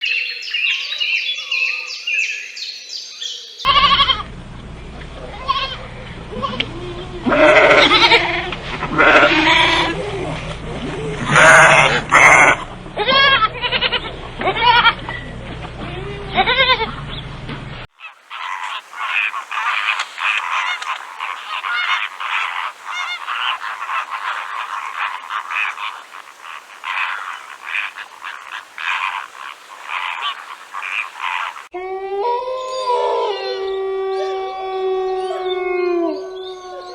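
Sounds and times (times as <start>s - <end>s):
dense pulsing chorus of calls: 5.2s - 12.8s, 17.9s - 31.8s
pitched rising and falling calls: 18.0s - 31.7s
short high animal calls: 18.0s - 31.7s.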